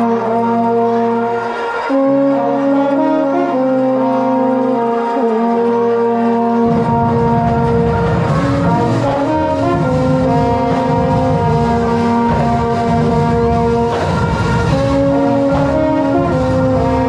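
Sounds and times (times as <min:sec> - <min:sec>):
brass holding sustained chords: 0:00.0 - 0:17.0
low drum and bass pulse: 0:06.5 - 0:17.0.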